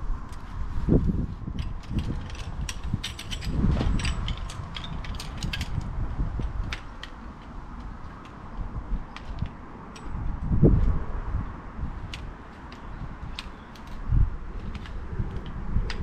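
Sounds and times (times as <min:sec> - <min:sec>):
objects clicking and knocking: 0:01.5 - 0:08.4.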